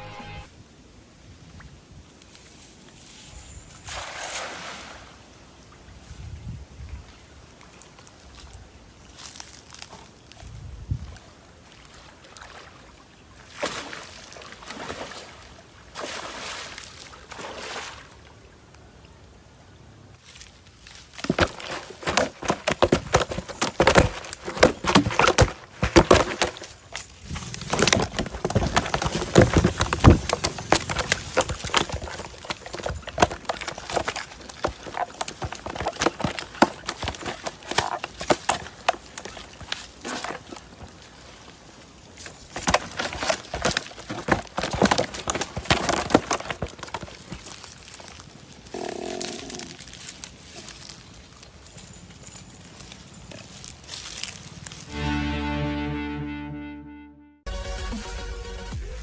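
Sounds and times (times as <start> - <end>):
water splashing: 3.8 - 5.3, 11.6 - 18.5.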